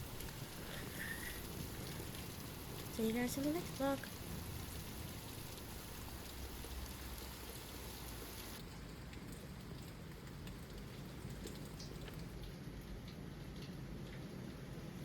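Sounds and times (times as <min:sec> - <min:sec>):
raindrops ticking: 0:00.0 - 0:15.0
steady rain falling: 0:00.0 - 0:15.0.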